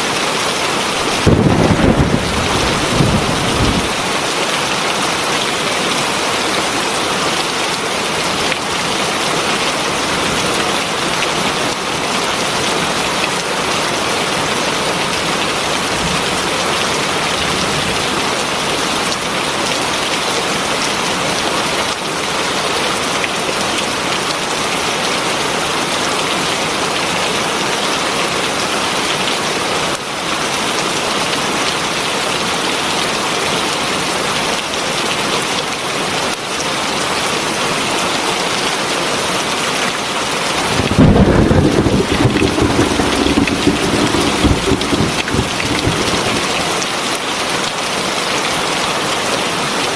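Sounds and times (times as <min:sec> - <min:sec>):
heavy rain falling: 0:40.5 - 0:47.2.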